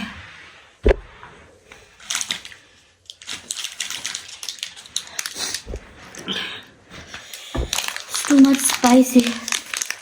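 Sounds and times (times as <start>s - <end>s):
hard thump: 7.5s - 7.8s.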